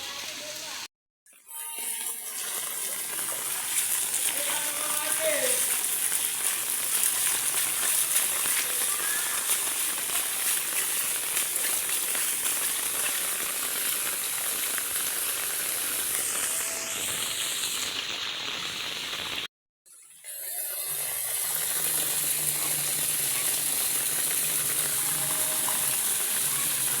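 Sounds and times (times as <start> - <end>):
heavy rain pouring: 3.7 - 19.5, 21.4 - 27.0.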